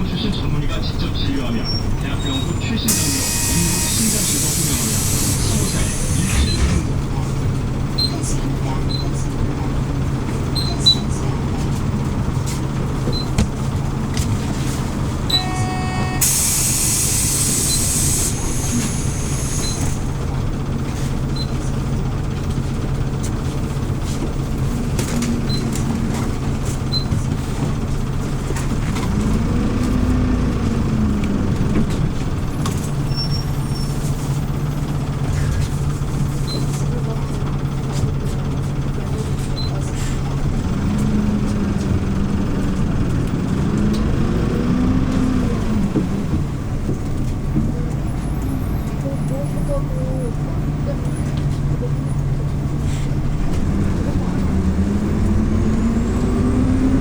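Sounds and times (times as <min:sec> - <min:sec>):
bus engine running: 0:00.0 - 0:57.0
air brakes hissing: 0:02.9 - 0:07.1, 0:14.8 - 0:20.3, 0:52.8 - 0:53.2.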